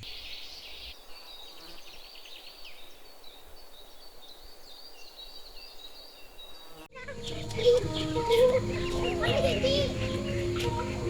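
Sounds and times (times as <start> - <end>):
high wavering chirping calls: 0.0 - 11.0
music: 6.9 - 11.0.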